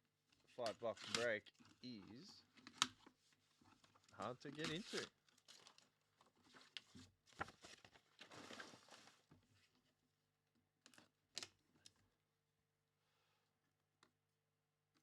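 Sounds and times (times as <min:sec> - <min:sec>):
plastic and cardboard rustle: 0:00.5 - 0:09.9.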